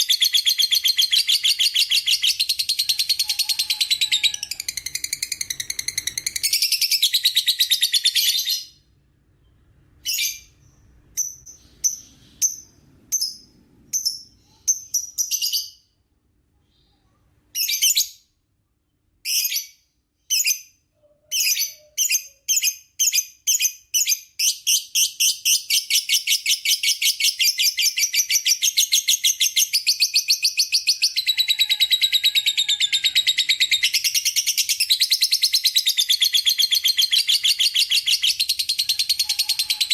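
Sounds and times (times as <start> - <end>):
lovebird high-pitched trill: 29.4 - 39.9.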